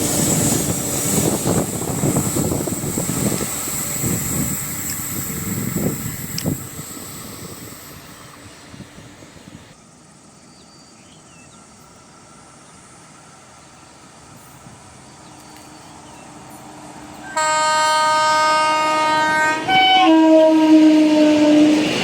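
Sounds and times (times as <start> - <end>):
distant diesel train rumble: 0.0 - 22.0.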